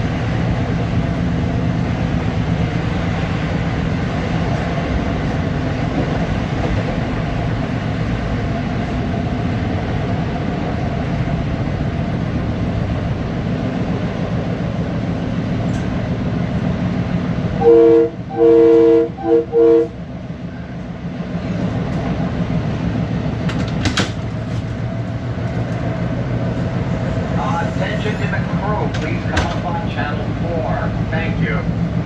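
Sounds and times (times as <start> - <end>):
electric train running on rails: 0.0 - 32.0
multi-note train horn blasts: 17.6 - 20.0.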